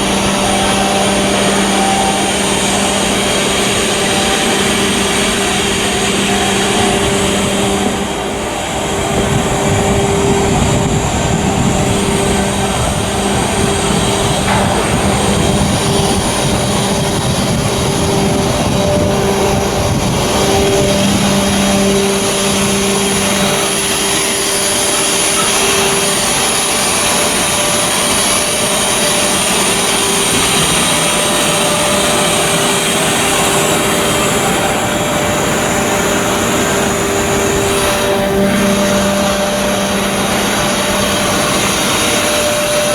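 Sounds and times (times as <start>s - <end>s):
heavy machinery low hum: 0.0s - 42.9s
machinery high whine: 0.0s - 42.9s.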